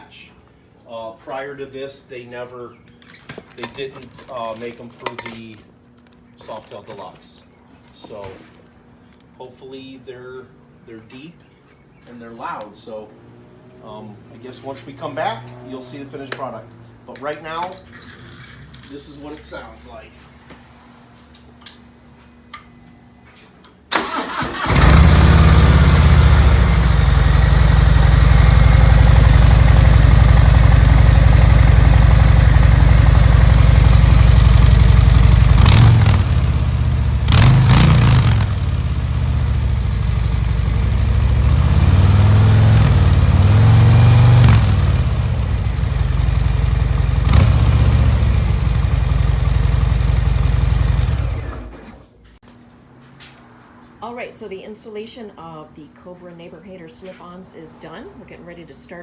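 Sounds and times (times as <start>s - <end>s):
motorcycle engine idling and revving: 13.1s - 17.1s, 24.3s - 52.1s
motorcycle starter cranking: 23.9s - 52.0s.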